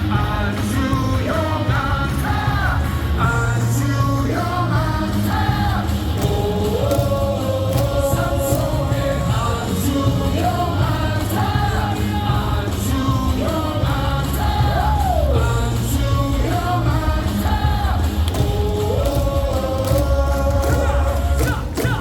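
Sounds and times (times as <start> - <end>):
amplified music with steady beat: 0.0 - 22.0
stadium crowd singing: 0.0 - 22.0
claps or thundersticks: 6.2 - 9.3, 18.2 - 22.0.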